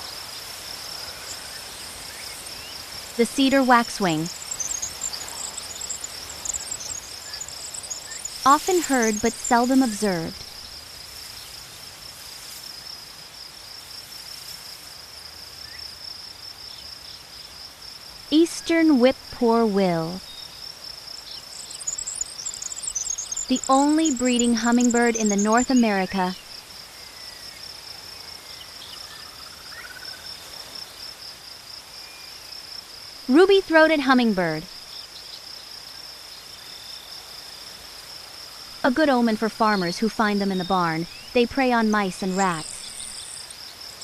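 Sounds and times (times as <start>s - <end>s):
high-pitched insect trill: 0.0s - 18.1s, 20.1s - 33.3s, 34.2s - 39.4s, 40.9s - 44.0s
faint background hiss: 0.0s - 44.0s
faint bird chirps: 1.1s - 11.6s, 21.2s - 27.6s.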